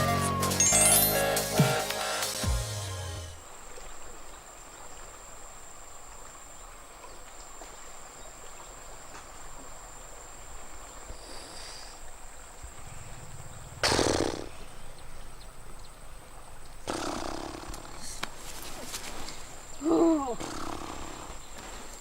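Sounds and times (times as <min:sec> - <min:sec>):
soft rushing noise: 0:12.4 - 0:16.8
burst of rushing noise: 0:12.5 - 0:15.6.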